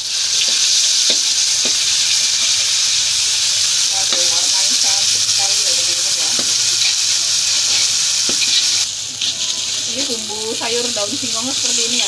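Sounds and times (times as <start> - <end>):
spice paste sizzling in oil: 0.0 - 12.0.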